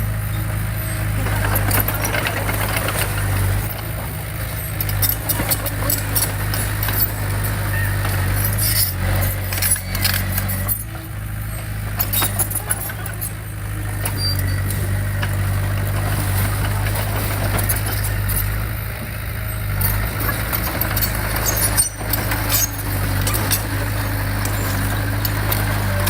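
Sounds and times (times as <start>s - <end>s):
diesel earthmoving equipment running: 0.0s - 26.0s
metallic clanks and rattles: 11.9s - 18.5s, 19.1s - 26.0s.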